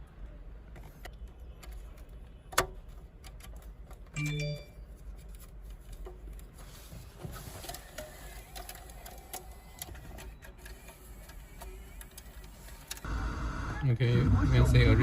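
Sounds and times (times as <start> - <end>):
plastic parts clicking and rattling: 7.3 - 13.0.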